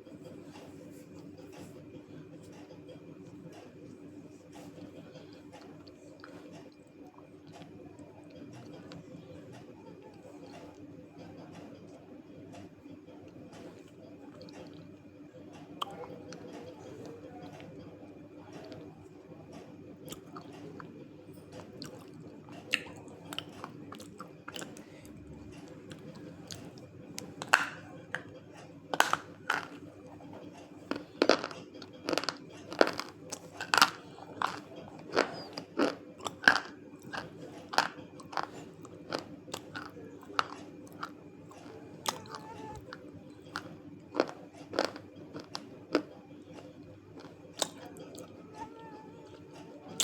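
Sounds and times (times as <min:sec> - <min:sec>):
person chewing crunchy clay: 0:21.6 - 0:24.9, 0:25.6 - 0:48.3.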